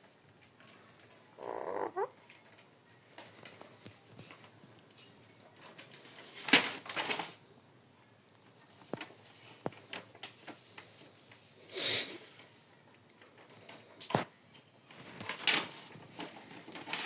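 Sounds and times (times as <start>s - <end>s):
parrot squawking: 1.4s - 2.2s.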